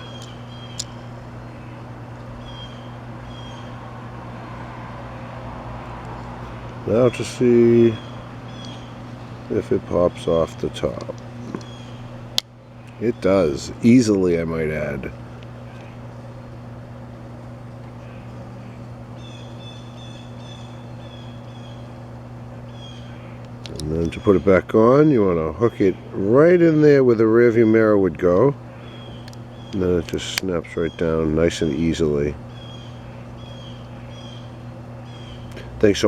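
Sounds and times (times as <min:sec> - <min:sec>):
bird calling high notes: 0:00.0 - 0:04.0, 0:06.8 - 0:10.5, 0:18.0 - 0:26.2, 0:30.6 - 0:35.5
steady low hum: 0:00.0 - 0:36.0.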